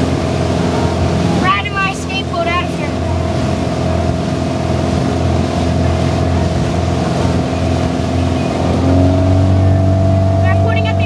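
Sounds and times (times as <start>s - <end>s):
motorboat engine running: 0.0s - 11.0s
wind and water rushing: 0.0s - 11.0s.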